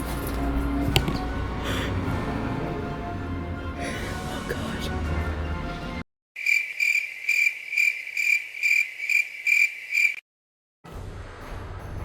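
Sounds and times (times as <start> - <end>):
cricket chirping: 6.4 - 10.2.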